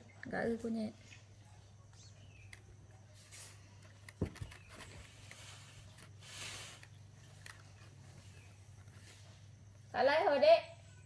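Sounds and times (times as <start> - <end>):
soft rustle: 2.8 - 9.9.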